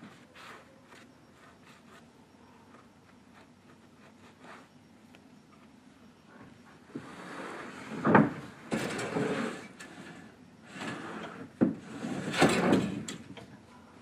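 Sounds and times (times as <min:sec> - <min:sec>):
wooden boards scraping: 0:06.9 - 0:13.4.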